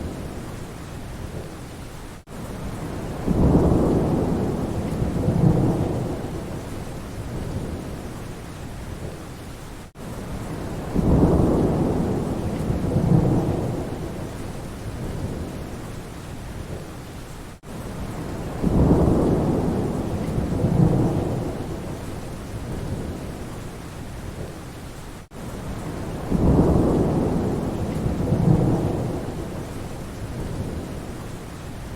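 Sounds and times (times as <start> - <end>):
steady rain: 0.0 - 31.9
thunder rumbling: 2.7 - 8.1, 10.4 - 15.7, 18.0 - 23.4, 25.7 - 31.1.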